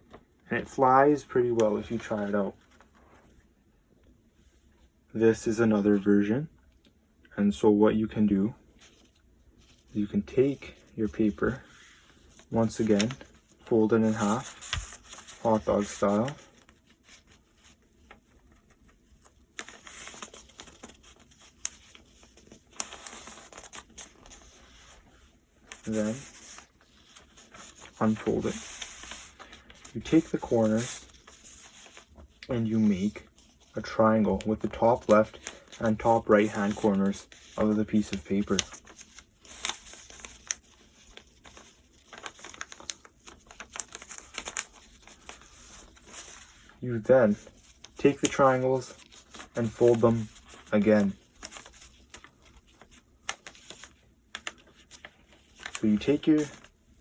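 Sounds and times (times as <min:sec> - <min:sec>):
paper rustling: 0:00.0 - 0:03.4, 0:08.7 - 0:57.0
paper crease snaps: 0:34.5 - 0:46.6, 0:47.3 - 0:56.7.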